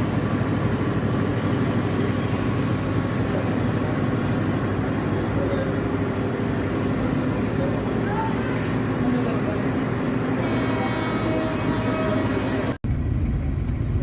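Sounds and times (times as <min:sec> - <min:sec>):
train running: 0:00.0 - 0:14.0.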